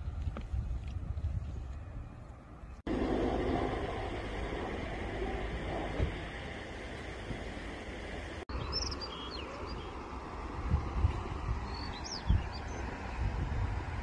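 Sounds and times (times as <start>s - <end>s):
small birds chirping: 8.5s - 10.1s, 11.6s - 13.3s.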